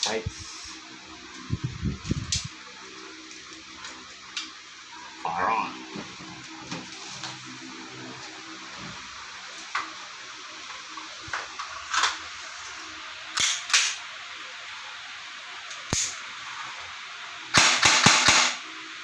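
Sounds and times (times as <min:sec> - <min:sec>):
airsoft rifle shots: 0:17.5 - 0:18.6.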